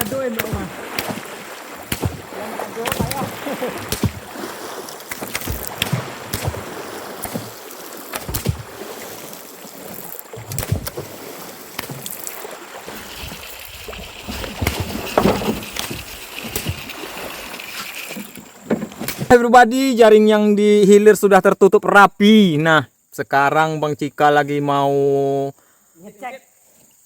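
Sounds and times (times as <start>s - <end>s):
river water sloshing and splashing: 0.0s - 19.4s.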